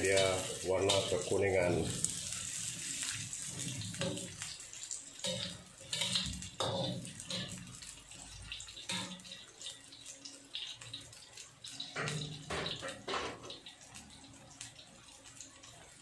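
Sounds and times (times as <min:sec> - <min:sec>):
spatula scraping wok: 0:00.0 - 0:04.6, 0:05.2 - 0:09.8
aromatics sizzling in hot oil: 0:00.0 - 0:16.0.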